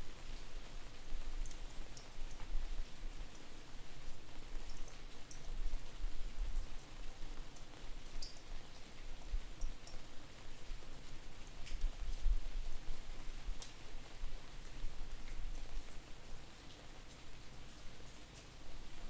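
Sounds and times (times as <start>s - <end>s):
steady rain: 0.0s - 19.0s
raindrops ticking: 1.4s - 2.5s, 3.3s - 5.6s, 6.6s - 10.1s, 13.6s - 16.0s
wind rumble on microphone: 11.7s - 13.6s.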